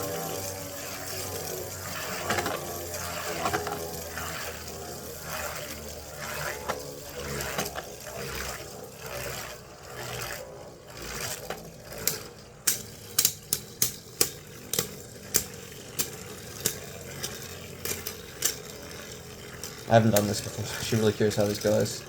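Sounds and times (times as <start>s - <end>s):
spinning tops scraping: 0.0s - 22.0s
sharp plastic clacks: 11.2s - 19.0s.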